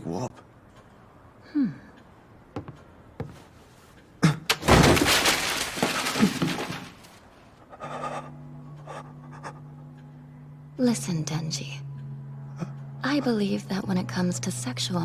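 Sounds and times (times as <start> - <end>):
loud crashing and breaking: 4.5 - 7.2.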